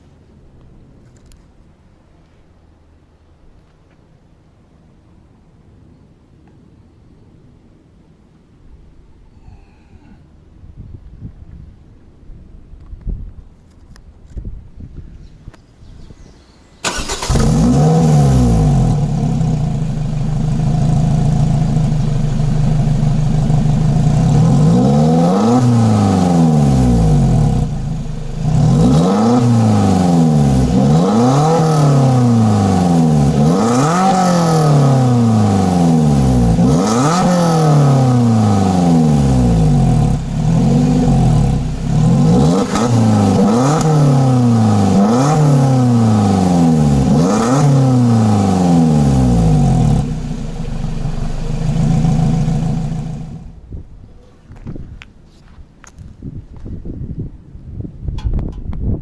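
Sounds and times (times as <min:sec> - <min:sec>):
car engine revving hard: 0:16.8 - 0:19.8, 0:24.0 - 0:53.5.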